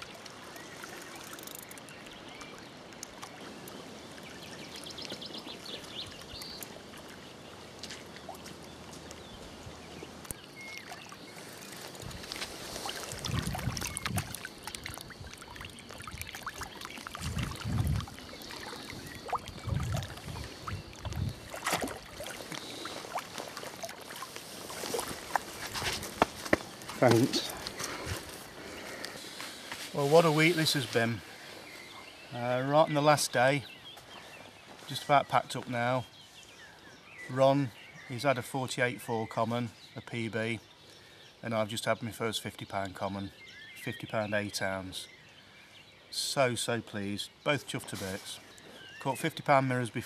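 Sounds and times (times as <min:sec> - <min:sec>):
water lapping and sloshing: 0:00.0 - 0:32.1
fine ticks: 0:00.9 - 0:02.2.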